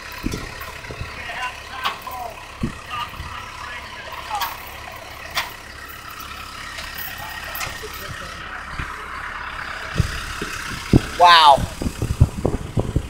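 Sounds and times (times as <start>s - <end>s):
truck engine idling: 0.0s - 13.0s
faint voices: 1.0s - 4.9s, 6.9s - 10.2s.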